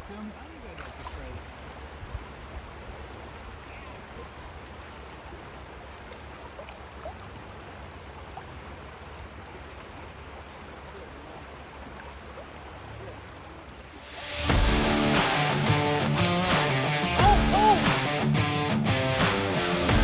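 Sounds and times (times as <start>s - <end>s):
river current rushing: 13.8s - 20.0s.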